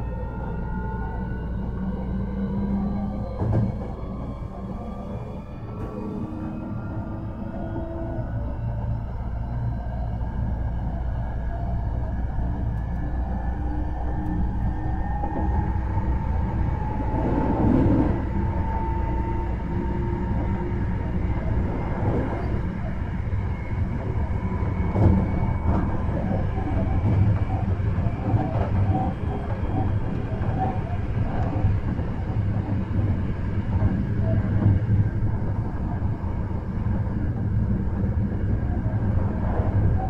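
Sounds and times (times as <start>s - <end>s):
train wheels rumbling on rail: 0.0s - 40.0s.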